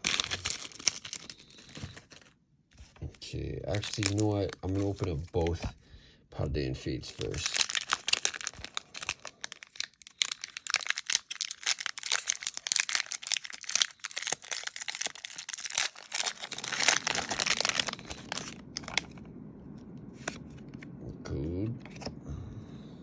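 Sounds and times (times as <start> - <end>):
foil wrappers crinkling and tearing: 0.0 - 2.4, 3.6 - 5.7, 7.0 - 19.2.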